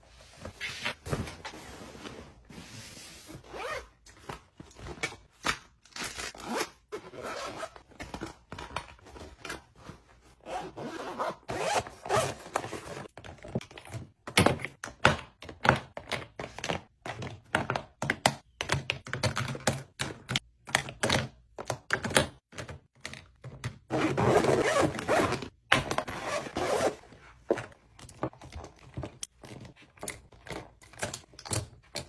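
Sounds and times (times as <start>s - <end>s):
zipper rasps: 3.5s - 3.8s, 10.4s - 12.3s, 23.9s - 25.4s, 26.1s - 27.0s.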